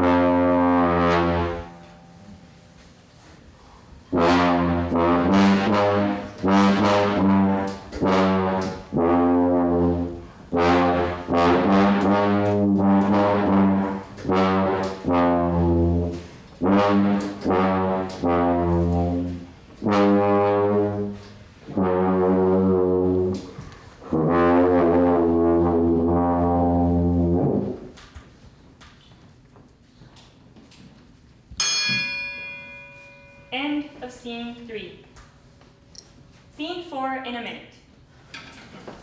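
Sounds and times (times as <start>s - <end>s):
brass playing held low notes: 0.0s - 28.0s.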